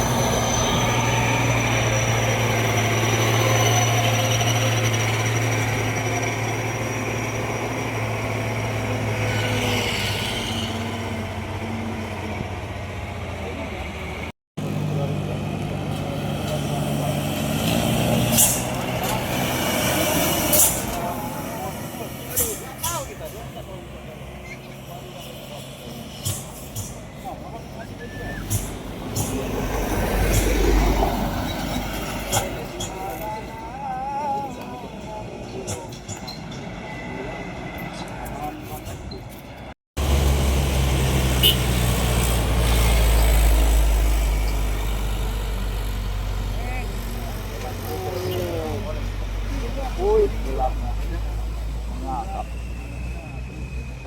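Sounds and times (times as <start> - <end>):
heavy truck engine running: 0.0 - 9.3
truck engine droning: 0.0 - 54.0
air-brake hisses: 18.3 - 18.8, 20.2 - 21.1, 28.0 - 29.6.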